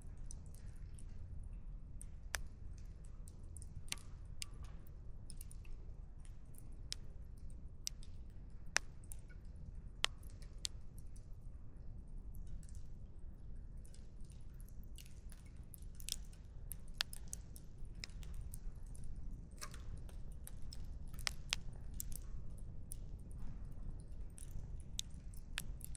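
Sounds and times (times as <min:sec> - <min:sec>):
firewood crackling and popping: 0:14.9 - 0:18.6, 0:20.1 - 0:22.3, 0:24.1 - 0:25.9.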